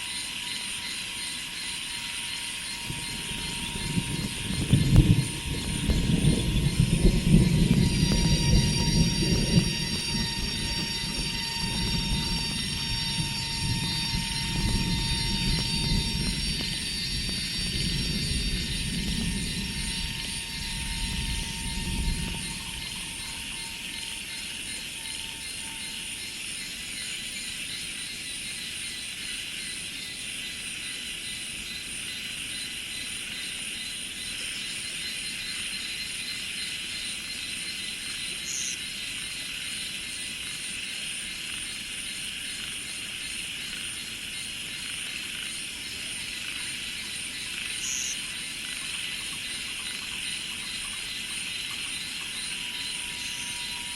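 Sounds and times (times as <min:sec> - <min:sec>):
insects droning: 0:00.0 - 0:53.9
low rumble: 0:02.8 - 0:24.4.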